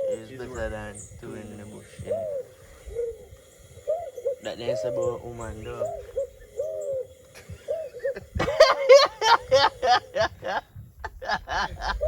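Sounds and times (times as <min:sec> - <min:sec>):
men laughing: 0:07.3 - 0:12.0.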